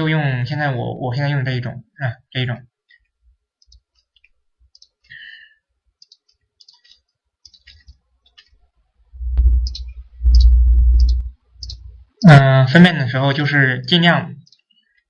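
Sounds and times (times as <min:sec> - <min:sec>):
computer mouse clicking: 0:03.6 - 0:05.1, 0:06.0 - 0:08.6, 0:09.6 - 0:11.9, 0:14.4 - 0:15.0
loud low rumble on microphone: 0:09.2 - 0:12.0.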